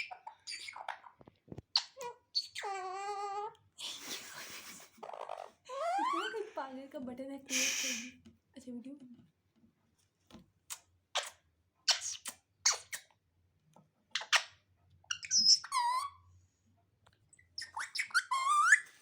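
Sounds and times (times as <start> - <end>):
parrot calling harshly: 15.1 - 16.1
parrot warbling calls: 15.1 - 16.1.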